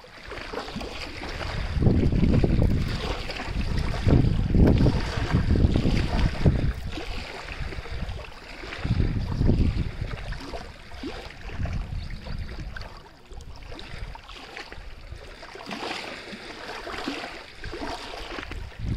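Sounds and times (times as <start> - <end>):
water splashing and lapping: 0.0 - 18.9.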